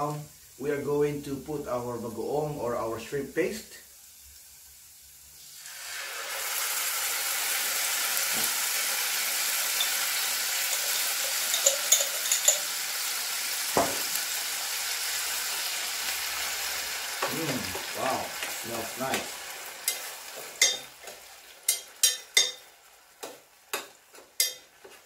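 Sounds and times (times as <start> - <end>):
shrimp paste sizzling in oil: 1.4 - 25.0
knock: 13.8 - 14.1.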